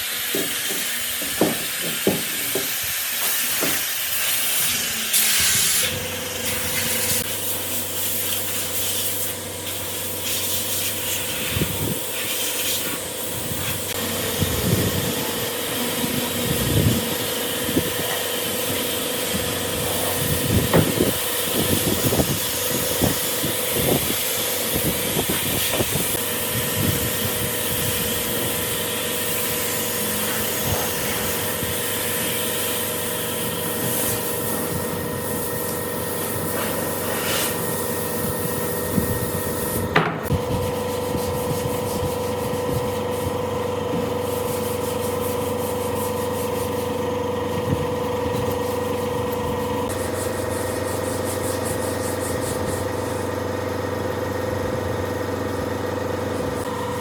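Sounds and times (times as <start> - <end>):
power tool motor whining: 0.0 - 40.4.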